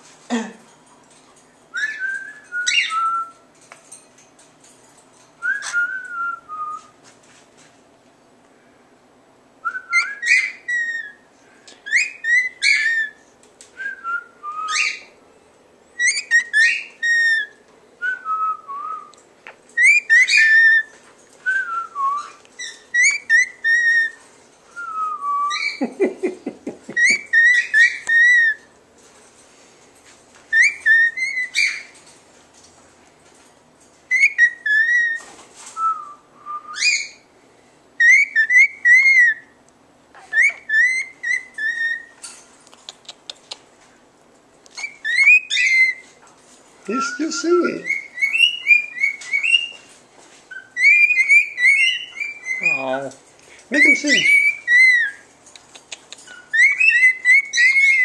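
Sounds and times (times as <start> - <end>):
pet bird whistling: 1.8 - 3.3, 9.7 - 11.2, 11.8 - 13.2, 14.1 - 15.1, 16.0 - 17.6, 19.8 - 20.9, 21.5 - 24.2, 27.0 - 28.6, 30.5 - 31.9, 34.1 - 35.2, 35.8 - 37.2, 38.0 - 39.5, 40.3 - 42.2, 44.8 - 46.0, 47.0 - 49.8, 50.5 - 52.9, 53.7 - 55.2, 55.9 - 58.0.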